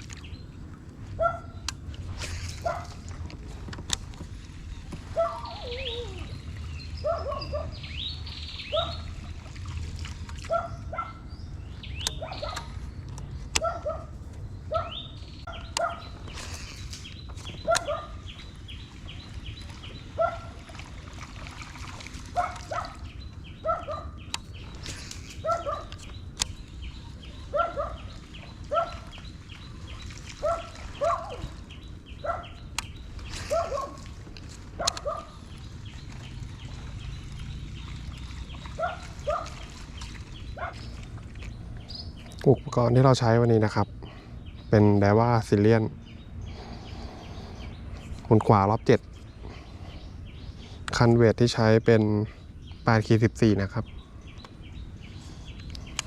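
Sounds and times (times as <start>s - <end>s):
animal calling: 5.1s - 7.9s, 24.8s - 26.1s, 33.2s - 34.1s.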